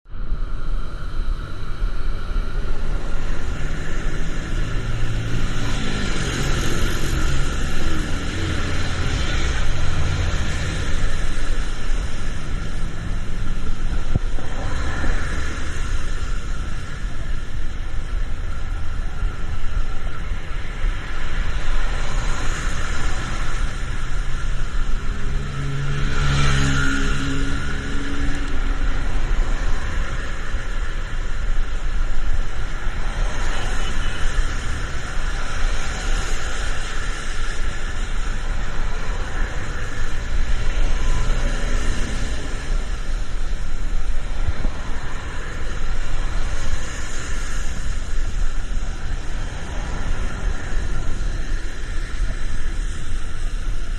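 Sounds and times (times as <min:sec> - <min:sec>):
road traffic passing: 0:00.1 - 0:53.9
heavy vehicle passing close: 0:21.9 - 0:30.4.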